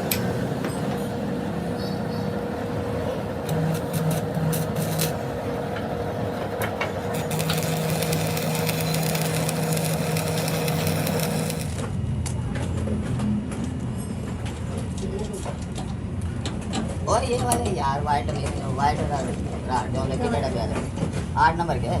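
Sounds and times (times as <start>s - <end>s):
workshop machinery humming: 0.0s - 21.4s
crackling clicks: 7.2s - 11.8s.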